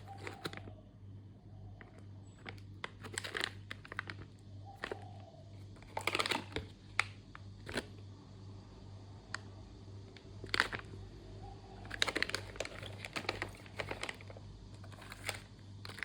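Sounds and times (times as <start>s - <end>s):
plastic packaging crinkling: 0.0s - 0.8s, 1.8s - 7.9s, 10.4s - 11.0s, 11.8s - 16.0s.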